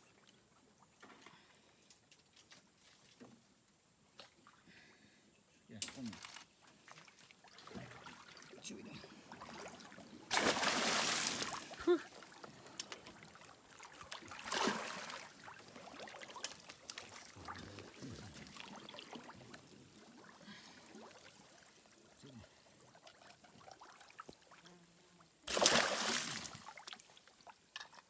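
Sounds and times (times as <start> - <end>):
water splashing and trickling: 0.0 - 4.7, 5.9 - 28.0
loud water splash: 10.3 - 11.8, 25.5 - 26.5.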